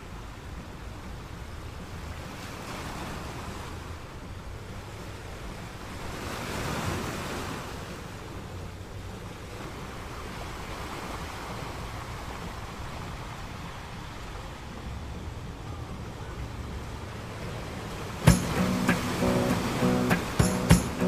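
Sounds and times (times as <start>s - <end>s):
surf washing on pebble beach: 17.2s - 21.0s.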